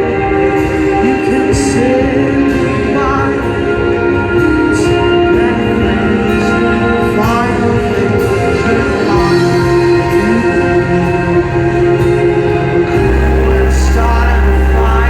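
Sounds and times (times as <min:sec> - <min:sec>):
band music: 0:00.0 - 0:15.0
person singing long notes: 0:13.0 - 0:15.0.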